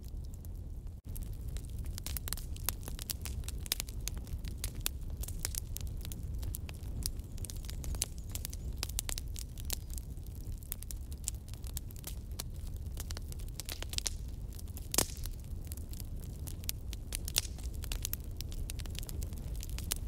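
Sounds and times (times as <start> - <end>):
fire pops and snaps: 0.0 - 20.0
low rumble of burning: 0.0 - 20.0.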